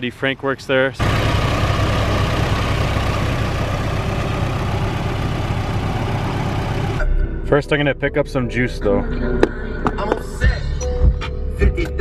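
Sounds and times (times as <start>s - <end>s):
car engine droning: 0.0s - 7.0s.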